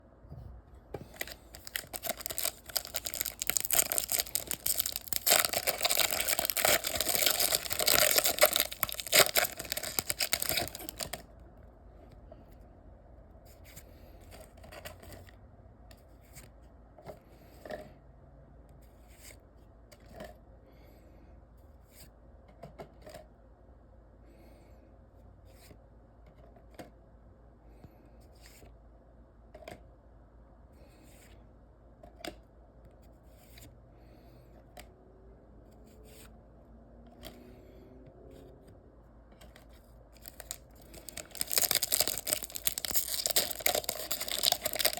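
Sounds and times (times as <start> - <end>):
cards clicking and rustling: 1.0 - 11.2, 40.2 - 44.9
foil wrapper tearing and crinkling: 1.1 - 11.2, 40.2 - 44.9.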